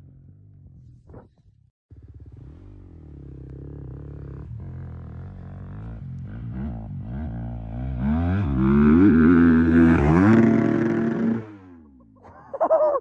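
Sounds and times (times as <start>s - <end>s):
dirt bike engine revving: 1.9s - 11.9s.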